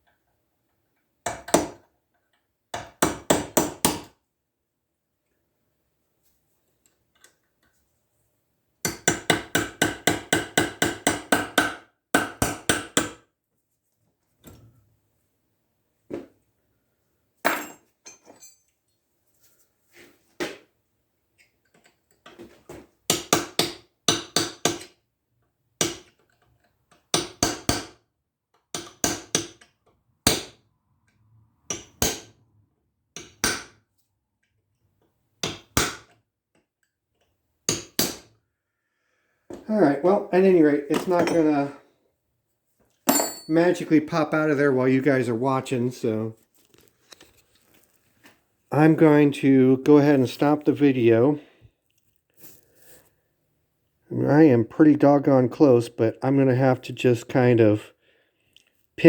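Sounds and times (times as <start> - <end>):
hammer striking chisel on steel: 8.8 - 13.2.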